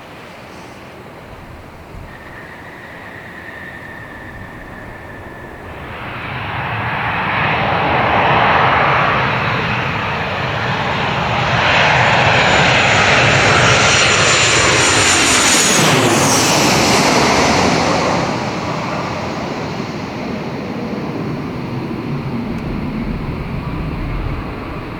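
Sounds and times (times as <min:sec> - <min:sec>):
jet airliner passing overhead: 0:00.0 - 0:24.9
high engine whine dropping in pitch: 0:01.2 - 0:12.6, 0:20.8 - 0:24.9.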